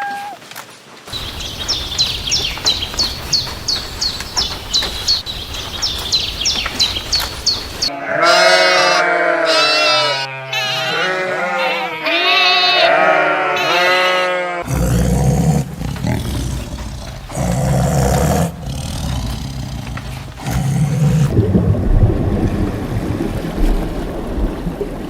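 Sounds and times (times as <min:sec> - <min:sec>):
low uneven rumbling: 0:01.1 - 0:07.9, 0:15.4 - 0:25.0
livestock bleating: 0:07.9 - 0:14.7.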